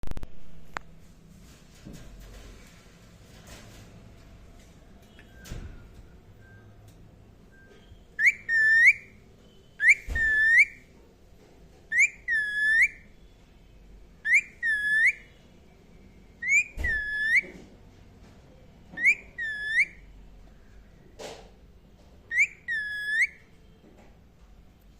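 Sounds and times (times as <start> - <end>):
parakeet whistled call: 7.6 - 10.8, 11.9 - 13.2, 14.2 - 15.3, 16.4 - 17.5, 19.0 - 20.0, 22.3 - 23.5.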